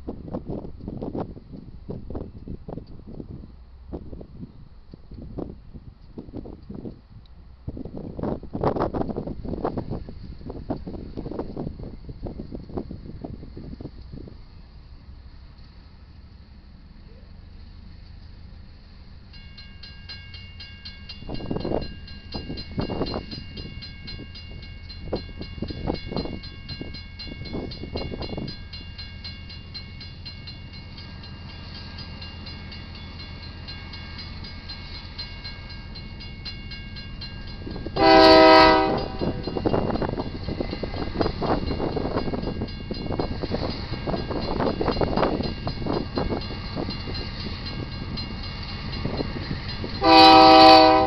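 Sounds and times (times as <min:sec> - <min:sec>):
diesel freight train rumble: 0:00.0 - 0:51.0
crossing bell ringing: 0:19.3 - 0:51.0
locomotive horn blast: 0:38.0 - 0:39.6, 0:50.0 - 0:51.0.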